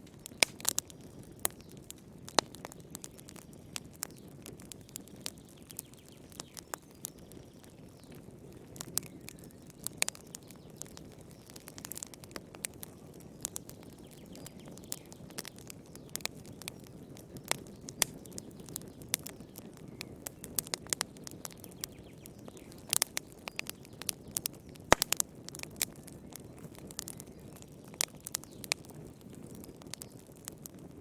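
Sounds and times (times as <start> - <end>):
campfire wood crackling and popping: 0.0 - 31.0
fire hissing: 24.9 - 25.8.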